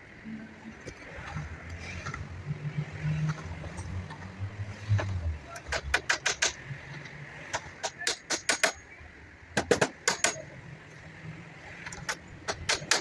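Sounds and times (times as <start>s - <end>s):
hand tool tapping wood: 7.5s - 8.8s, 11.9s - 13.0s.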